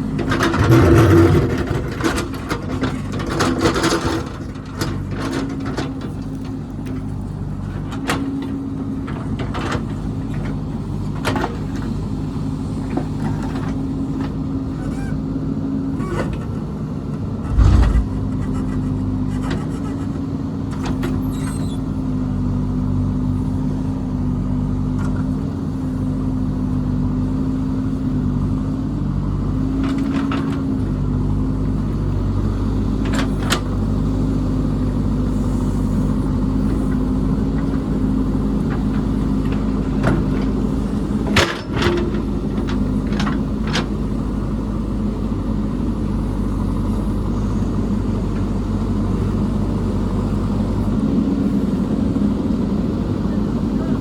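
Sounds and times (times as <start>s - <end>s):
diesel engine running: 15.4s - 21.2s, 21.9s - 54.0s
heavy low thump: 17.4s - 18.5s
metal clanks and knocks: 17.4s - 18.8s.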